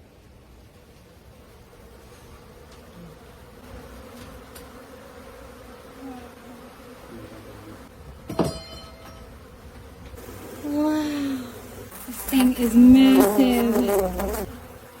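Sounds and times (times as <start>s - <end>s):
bees buzzing: 0.0s - 15.0s
bee flying close past: 0.3s - 8.3s, 9.2s - 15.0s
sharp metallic knock: 8.3s - 9.3s.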